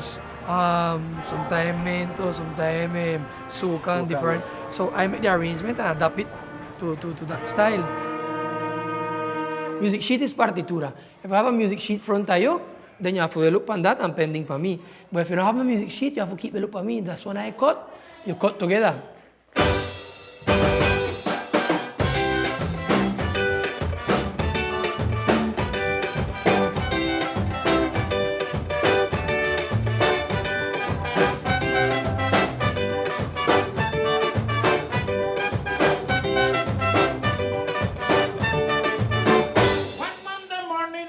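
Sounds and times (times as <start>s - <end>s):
band with horns and drums playing: 0.0s - 9.9s, 19.6s - 40.5s.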